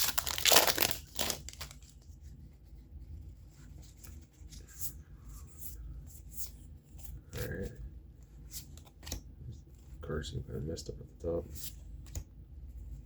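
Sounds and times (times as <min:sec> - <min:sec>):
foil wrapper crinkling and tearing: 0:00.0 - 0:02.0
trading cards being handled: 0:00.0 - 0:02.0.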